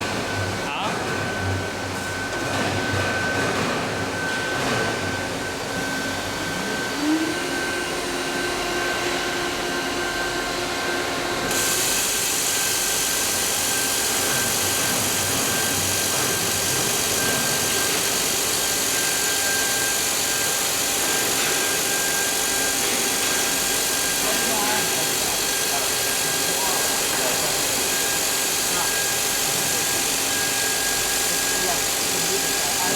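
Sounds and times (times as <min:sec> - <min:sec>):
milling machine high whine: 0:00.0 - 0:32.9
loud steady hiss: 0:11.5 - 0:21.0.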